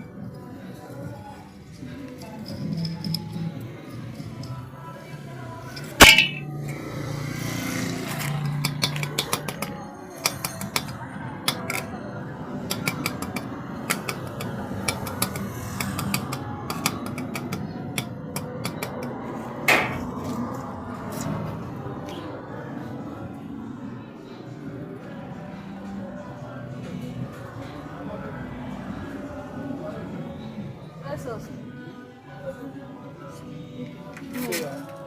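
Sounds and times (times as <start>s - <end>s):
sharp metallic knock: 6.0s - 6.5s, 19.7s - 20.0s.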